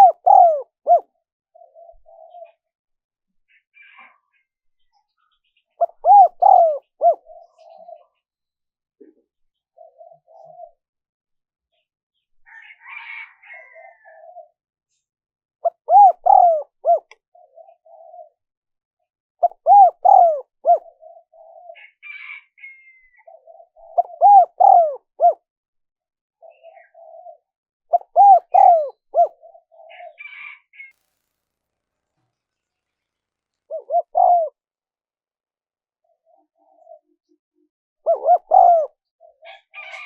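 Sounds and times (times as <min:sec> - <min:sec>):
dove cooing: 0:00.0 - 0:02.7, 0:05.8 - 0:08.2, 0:09.0 - 0:10.8, 0:12.6 - 0:14.6, 0:15.6 - 0:18.4, 0:19.4 - 0:25.4, 0:26.4 - 0:30.9, 0:33.7 - 0:34.6, 0:36.0 - 0:37.4, 0:38.0 - 0:40.0.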